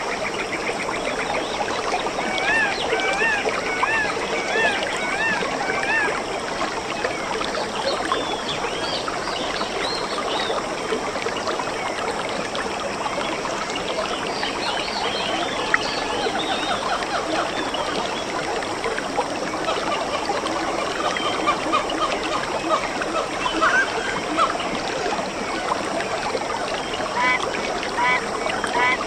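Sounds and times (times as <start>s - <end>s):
stream babbling: 0.0s - 29.0s.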